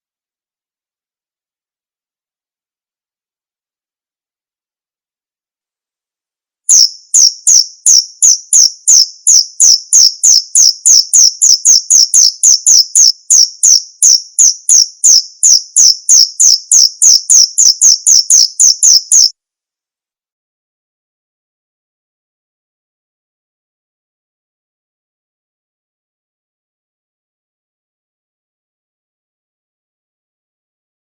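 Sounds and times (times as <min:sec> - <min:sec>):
cricket chirping: 0:06.7 - 0:19.3.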